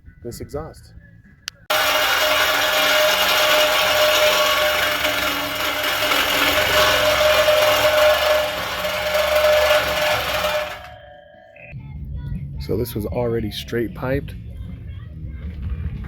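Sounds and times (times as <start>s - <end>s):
power tool cutting metal pipe: 1.7s - 11.0s.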